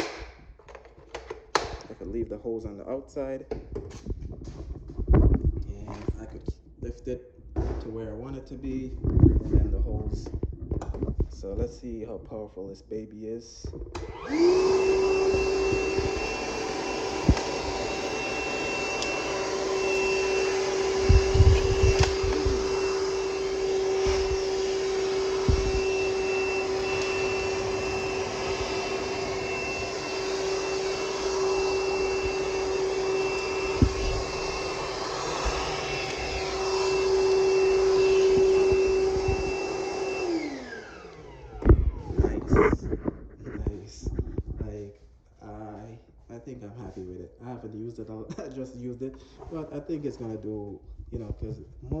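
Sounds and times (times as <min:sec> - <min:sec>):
vacuum motor whining: 0:13.9 - 0:42.9.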